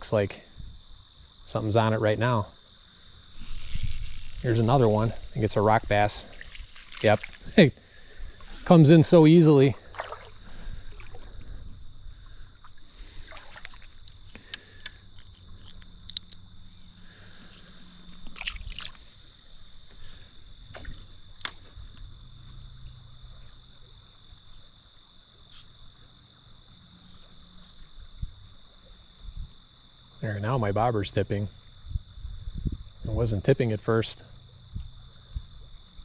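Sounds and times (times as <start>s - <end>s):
insects chirring: 0.0s - 36.0s
creek water trickling: 2.9s - 16.6s, 17.2s - 20.0s.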